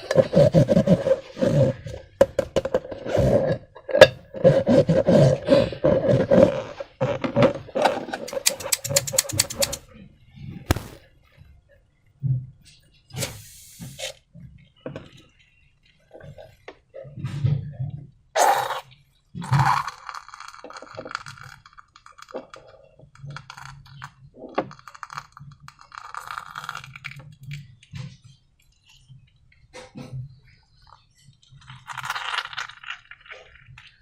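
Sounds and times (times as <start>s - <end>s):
clicks and clinks of containers: 7.9s - 9.8s
loud crunches: 10.7s - 11.0s.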